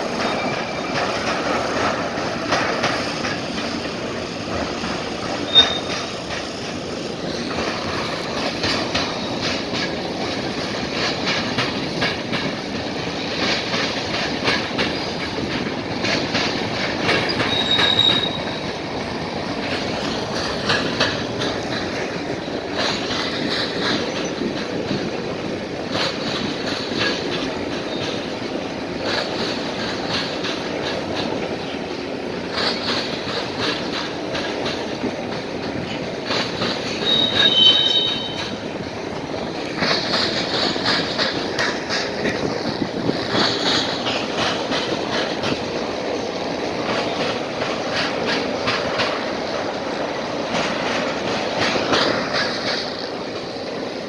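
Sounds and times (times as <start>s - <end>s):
train wheels clattering over crossing: 0.0s - 54.0s
high wheel squeal: 5.4s - 6.1s, 17.2s - 18.7s, 36.9s - 38.6s.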